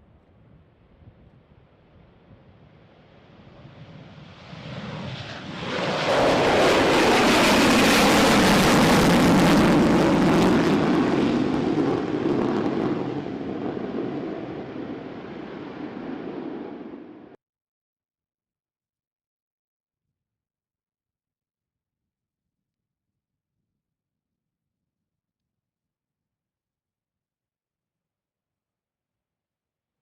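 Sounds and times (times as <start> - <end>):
jet aircraft passing: 2.6 - 17.4.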